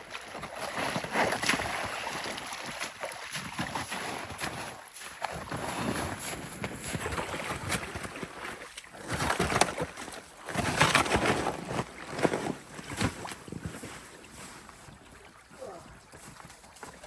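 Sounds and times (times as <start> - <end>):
footsteps scuffing through snow: 3.9 - 7.0.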